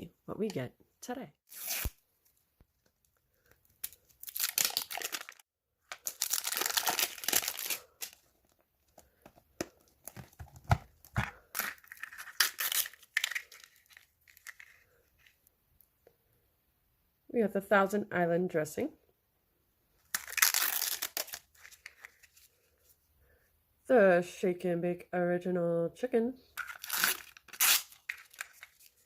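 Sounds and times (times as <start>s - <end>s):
plastic packaging tearing: 1.5s - 2.0s, 3.8s - 8.2s, 10.0s - 14.7s, 20.1s - 22.2s, 26.6s - 29.0s.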